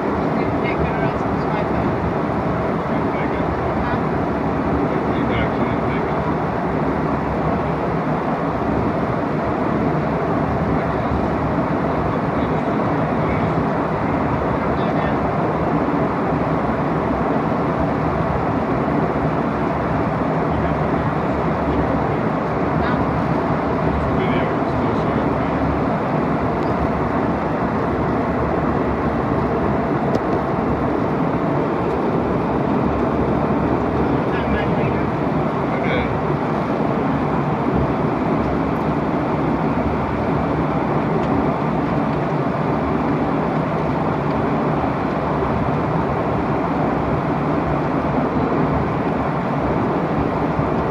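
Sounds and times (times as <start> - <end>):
airliner cabin engine rumble: 0.0 - 50.9.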